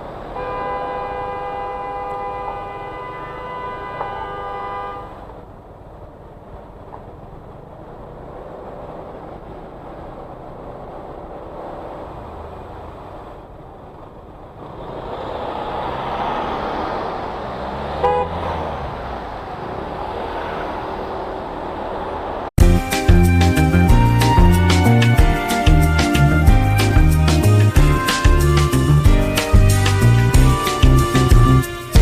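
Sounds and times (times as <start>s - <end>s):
motorcycle engine: 0.0s - 32.0s
music: 22.6s - 32.0s.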